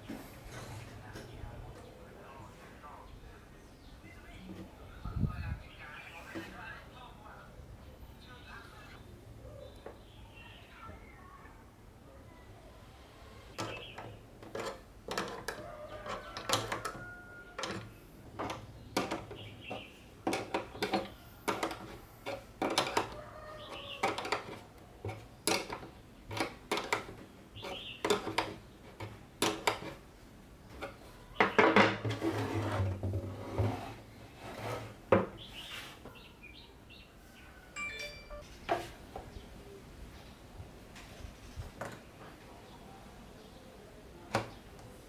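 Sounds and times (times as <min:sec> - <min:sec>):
rubbing or scraping: 0:13.4 - 0:30.1, 0:30.7 - 0:36.1
hard parts clicking and clattering: 0:13.5 - 0:30.0.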